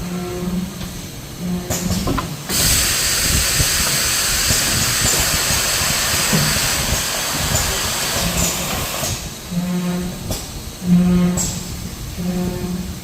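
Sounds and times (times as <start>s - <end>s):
packaging machine hiss: 1.8s - 9.4s.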